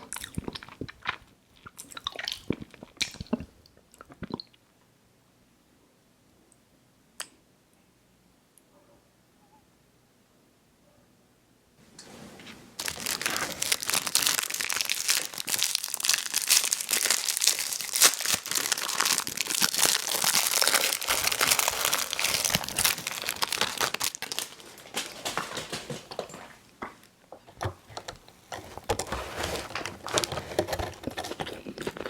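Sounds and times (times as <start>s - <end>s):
candy wrapper crinkling: 12.8s - 25.8s, 28.0s - 32.0s.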